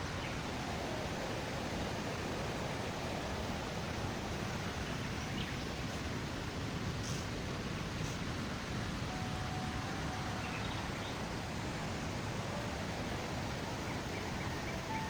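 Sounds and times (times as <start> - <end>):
faint high bird chirps: 9.1 - 11.6, 12.6 - 15.0.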